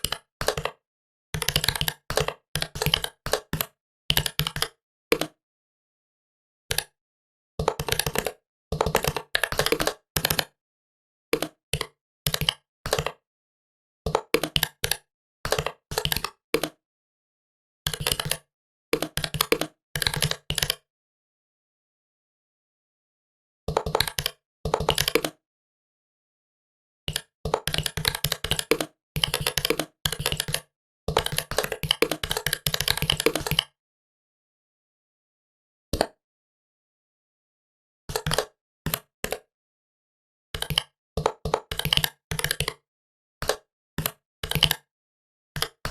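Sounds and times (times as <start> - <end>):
fast typing on laptop keyboard: 1.4 - 5.3, 7.6 - 10.5, 11.4 - 13.2, 14.1 - 16.8, 17.9 - 18.4, 19.0 - 20.8, 23.7 - 25.4, 27.1 - 33.6, 40.6 - 42.8, 43.4 - 44.8.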